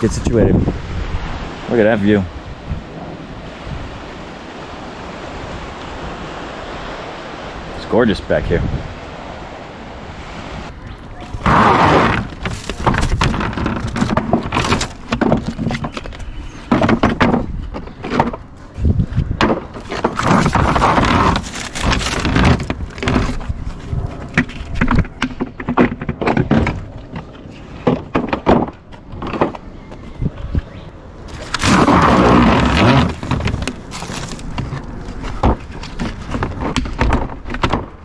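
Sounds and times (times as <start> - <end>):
tools thudding and clattering: 12.1 - 16.0.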